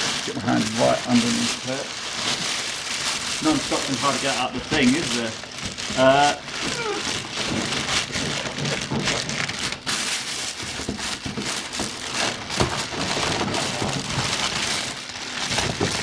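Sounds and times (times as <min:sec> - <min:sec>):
packaging rustling and crinkling: 0:00.0 - 0:16.0.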